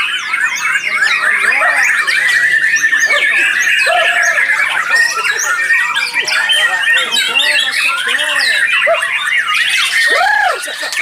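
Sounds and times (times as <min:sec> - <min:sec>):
songbirds singing: 0:00.0 - 0:11.0.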